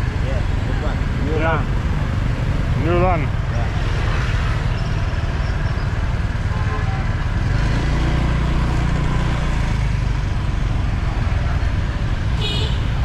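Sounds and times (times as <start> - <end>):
motorbike engine running close by: 0.0 - 4.2
motorbike engines in traffic: 0.0 - 13.0.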